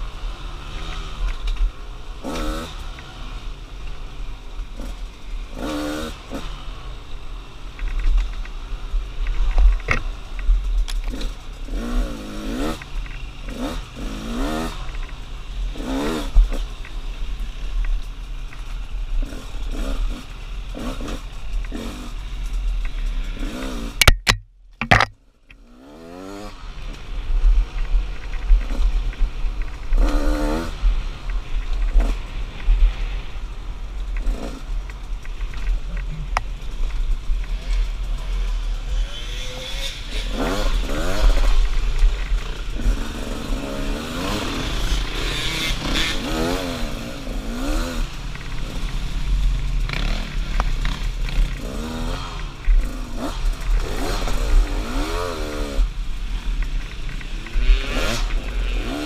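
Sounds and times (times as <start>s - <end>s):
dirt bike engine revving: 0.0s - 7.5s, 11.0s - 16.8s, 19.1s - 27.0s, 28.6s - 33.2s, 34.1s - 35.5s, 37.4s - 59.0s
sharp knocks: 24.0s - 25.2s.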